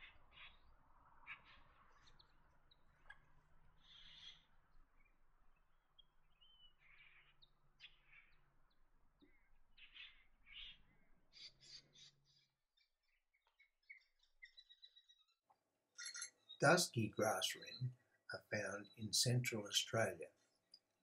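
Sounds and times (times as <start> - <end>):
harsh bird calls and chirps: 0.0 - 20.7
high bird chirps: 3.8 - 15.4, 16.0 - 20.1.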